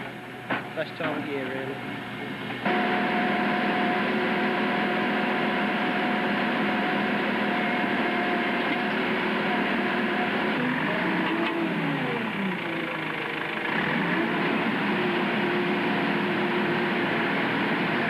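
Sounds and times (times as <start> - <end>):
digger diesel engine running: 0.0 - 18.0.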